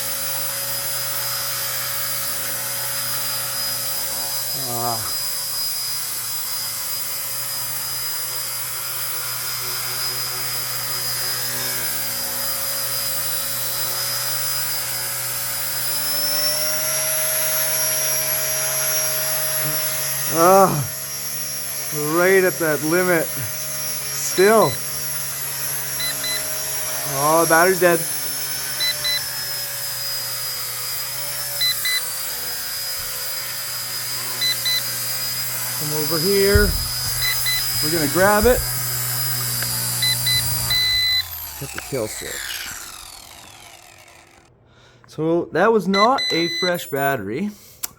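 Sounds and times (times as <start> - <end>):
rotor blades buzzing: 0.0 - 44.5
toy helicopter motor whining: 0.0 - 44.6, 46.0 - 47.9
low-battery alarm double beep: 26.0 - 26.6, 28.8 - 29.3, 31.6 - 32.1, 34.4 - 35.1, 35.9 - 38.8, 40.0 - 41.3, 45.9 - 47.2.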